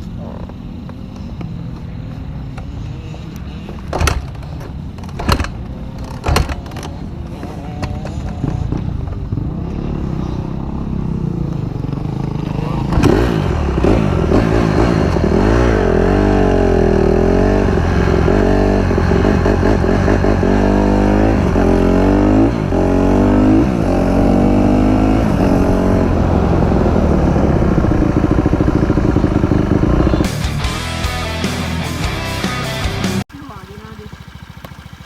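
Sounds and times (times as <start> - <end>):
dirt bike engine revving: 7.3 - 35.0.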